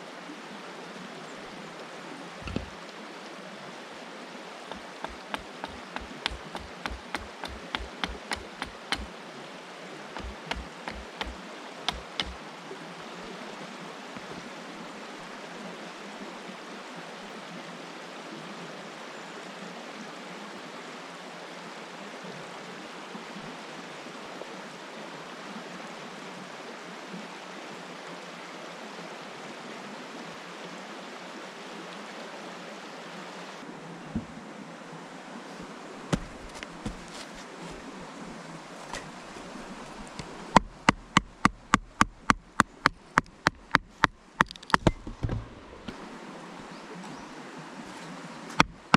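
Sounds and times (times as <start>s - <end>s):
river flowing: 0.0s - 48.9s
sharp knocks: 2.4s - 2.8s, 4.7s - 9.1s, 10.2s - 12.4s, 36.1s - 37.1s, 40.6s - 45.5s, 48.6s - 48.9s.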